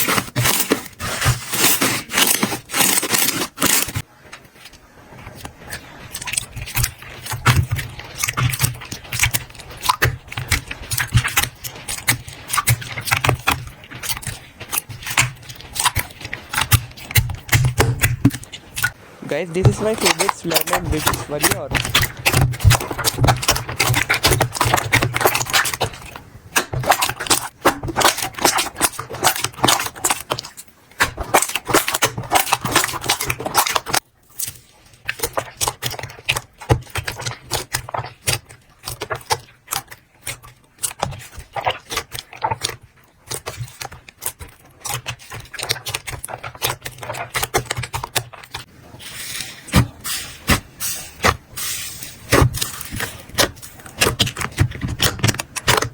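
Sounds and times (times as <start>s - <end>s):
slime clicking and popping: 52.2s - 55.9s.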